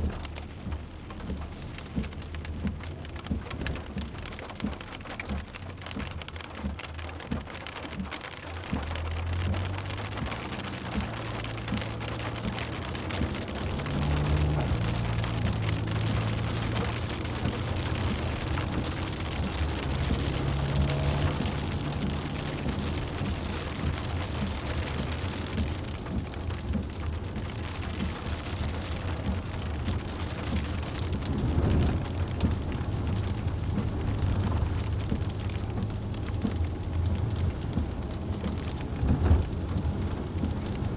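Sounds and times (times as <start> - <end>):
rain pattering: 0.0 - 40.9
low vehicle drone: 9.1 - 40.9.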